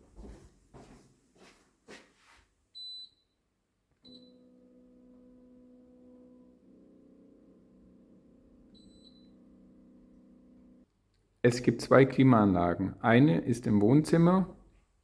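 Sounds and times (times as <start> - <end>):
air conditioner beeping: 8.7 - 9.4.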